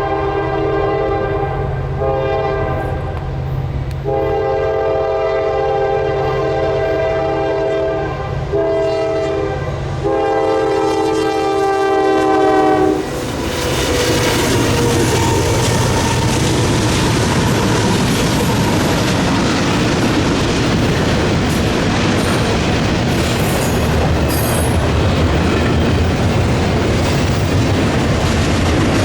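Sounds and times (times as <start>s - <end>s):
locomotive air horn blasts: 0.0s - 3.3s, 4.0s - 16.6s
passing train rushing and clattering: 0.0s - 29.0s
locomotive engine rumble: 9.7s - 29.0s.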